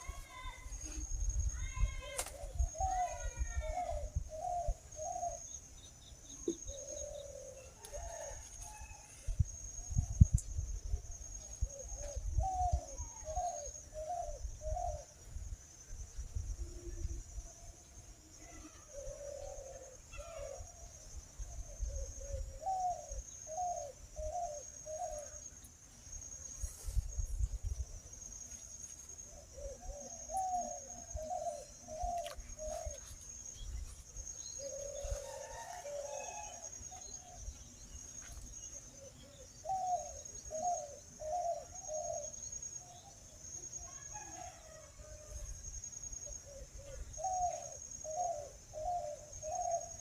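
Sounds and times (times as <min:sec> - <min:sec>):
dove cooing: 0:01.5 - 0:05.5, 0:06.5 - 0:09.3, 0:11.6 - 0:15.1, 0:18.4 - 0:20.9, 0:21.5 - 0:25.4, 0:29.3 - 0:33.1, 0:34.5 - 0:37.4, 0:38.9 - 0:42.4, 0:46.2 - 0:50.0.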